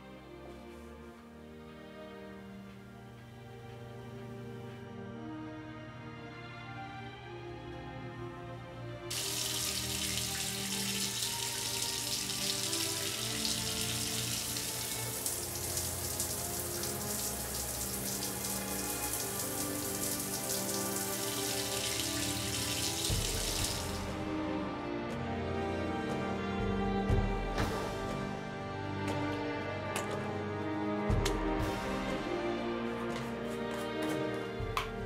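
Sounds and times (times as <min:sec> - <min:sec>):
soft background music: 0:00.0 - 0:35.0
shower spray hissing: 0:09.1 - 0:24.2.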